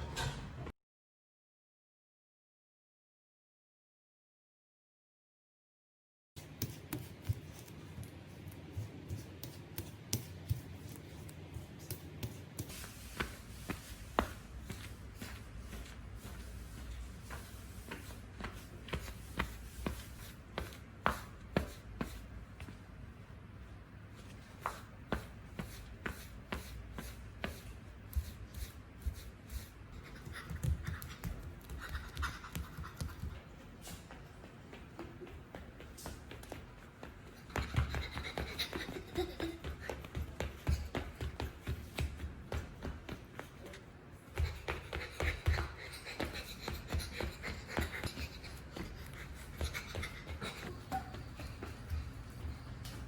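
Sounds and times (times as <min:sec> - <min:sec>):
soft footsteps in slippers: 0:06.4 - 0:53.0
feet scuffing: 0:12.7 - 0:22.9.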